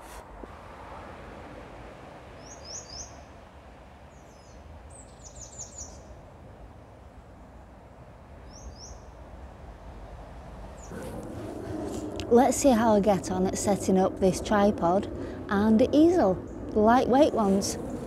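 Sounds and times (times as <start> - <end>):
small songbird chirping: 2.4 - 3.3, 4.1 - 6.2, 8.4 - 9.2
low background hum: 6.6 - 18.0.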